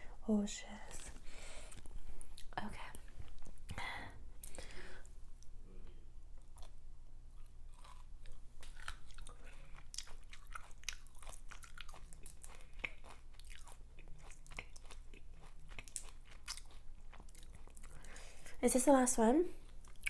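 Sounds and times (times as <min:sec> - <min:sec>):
wet chewing and biting: 0:07.4 - 0:18.1.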